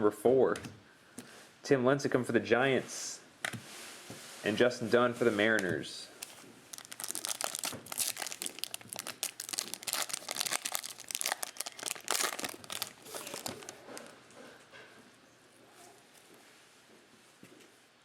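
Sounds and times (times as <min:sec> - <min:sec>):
plastic wrapper crinkling: 0:06.2 - 0:14.2.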